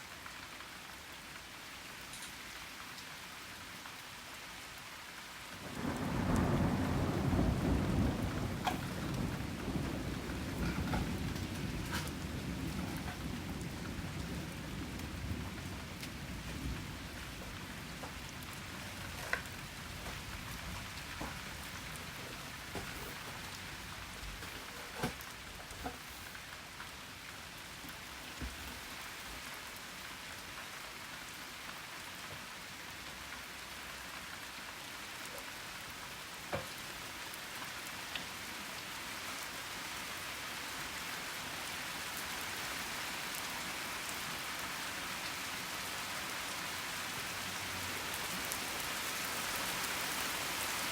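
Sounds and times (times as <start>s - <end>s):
steady rain falling: 0.0s - 50.9s
raindrops tapping: 5.6s - 27.1s.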